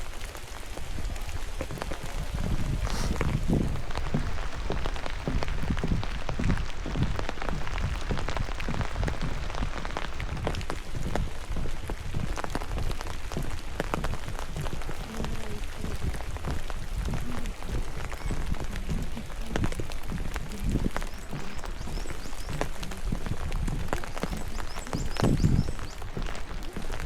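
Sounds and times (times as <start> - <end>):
low dull thuds: 0.0 - 27.0
rain hissing: 0.0 - 27.0
raindrops ticking: 0.0 - 27.0.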